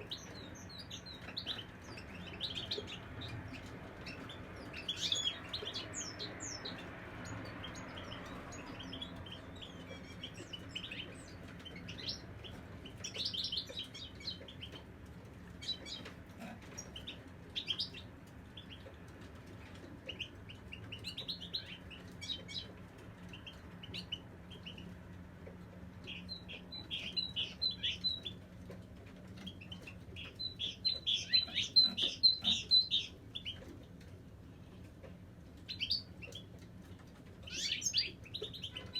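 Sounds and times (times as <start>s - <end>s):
finch singing twittering chirps: 0.0s - 14.8s, 16.7s - 18.8s, 26.0s - 28.4s, 29.4s - 33.6s, 35.7s - 36.5s, 37.4s - 38.9s.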